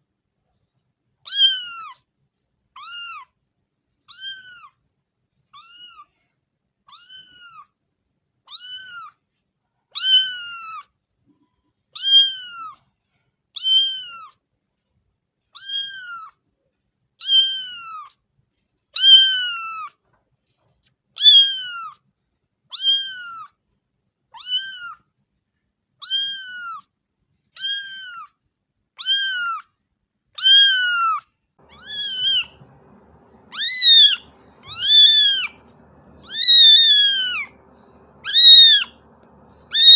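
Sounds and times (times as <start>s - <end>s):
cat meowing: 1.3s - 2.0s, 2.8s - 3.3s, 4.1s - 4.8s, 5.6s - 6.1s, 6.9s - 7.7s, 8.5s - 9.2s, 10.0s - 10.8s, 12.0s - 12.8s, 13.6s - 14.4s, 15.6s - 16.3s, 17.2s - 18.1s, 19.0s - 19.9s, 21.2s - 22.0s, 22.7s - 23.5s, 24.4s - 25.0s, 26.0s - 26.8s, 27.6s - 28.3s, 29.0s - 29.7s, 30.4s - 39.9s.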